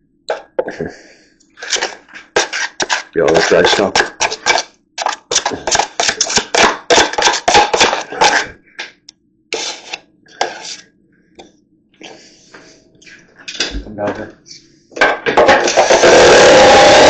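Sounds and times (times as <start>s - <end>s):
tool scraping through plaster: 1.6s - 8.5s, 9.5s - 10.8s, 15.6s - 17.0s.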